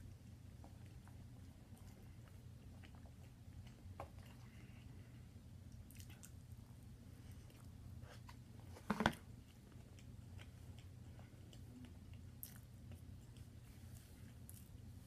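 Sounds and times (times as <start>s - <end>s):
person chewing: 9.4s - 14.8s.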